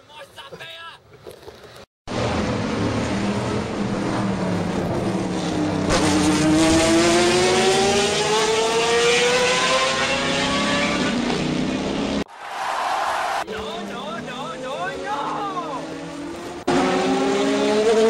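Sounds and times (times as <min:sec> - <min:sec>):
car engine revving up: 0:02.1 - 0:12.2, 0:13.7 - 0:18.0.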